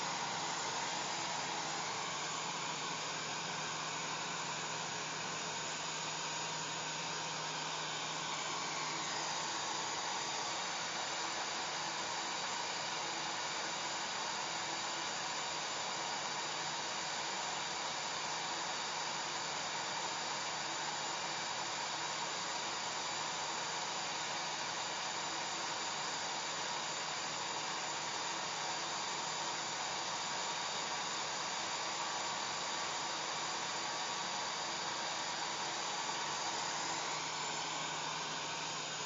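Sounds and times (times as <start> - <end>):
hair dryer blowing: 0.0 - 13.6, 30.2 - 39.0.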